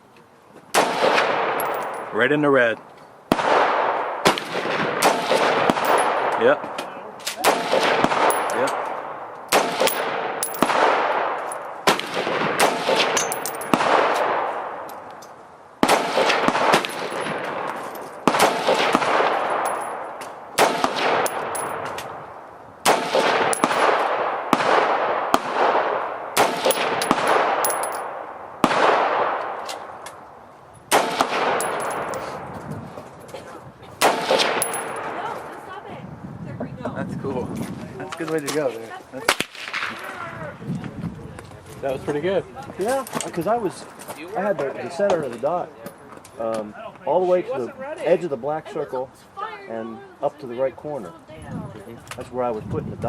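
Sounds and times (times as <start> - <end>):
rifle shots with echo: 0.8 - 2.2, 3.3 - 6.7, 7.4 - 14.9, 15.8 - 21.8, 22.8 - 29.9, 30.9 - 32.5, 34.0 - 35.2.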